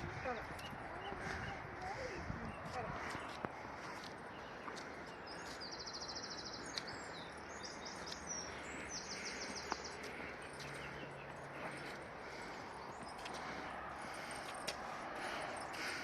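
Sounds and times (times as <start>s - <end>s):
songbird trilling and chirping: 4.3s - 11.3s.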